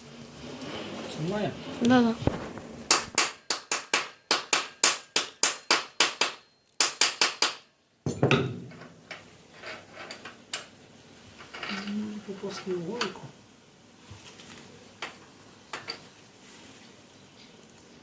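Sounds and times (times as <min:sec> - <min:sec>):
rapid hammer blows on metal: 0:02.9 - 0:07.7.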